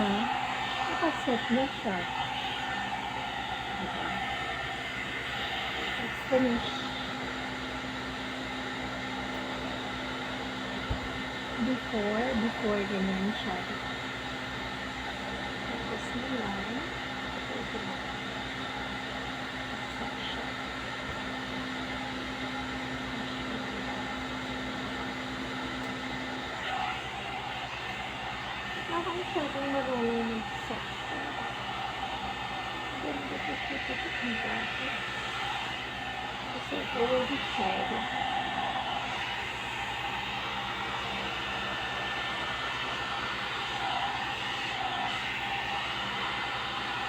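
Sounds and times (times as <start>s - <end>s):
hair dryer running: 0.0s - 47.0s.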